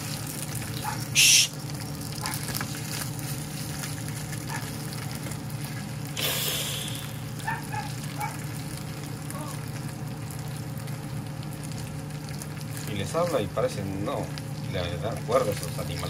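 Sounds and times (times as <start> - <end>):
chicken sizzling in a pot: 0.0 - 16.0.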